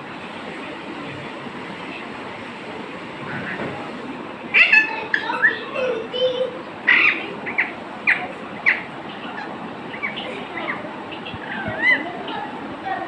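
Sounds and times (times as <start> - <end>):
bird squawking and chirping: 6.8 - 12.5.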